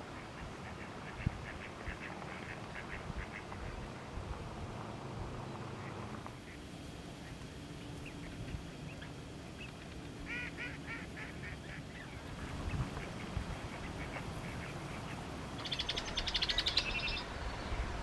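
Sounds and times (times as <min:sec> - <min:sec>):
low marsh background: 0:00.0 - 0:18.0
bird call notes: 0:07.2 - 0:17.9.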